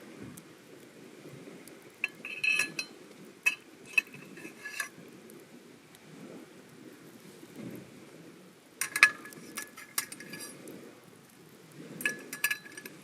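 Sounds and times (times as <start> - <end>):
low background rustle: 0.0 - 13.0
metal utensils clinking on cookware: 2.0 - 2.9, 3.5 - 4.9, 8.8 - 10.6, 12.0 - 13.0.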